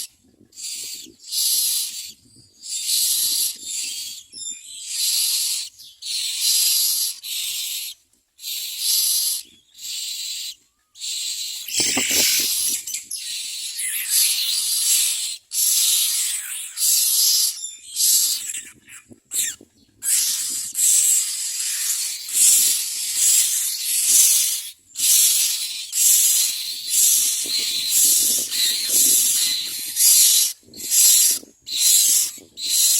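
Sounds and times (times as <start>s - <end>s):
nestlings begging calls: 11.1s - 14.6s, 23.1s - 32.9s
rustle: 11.7s - 13.1s.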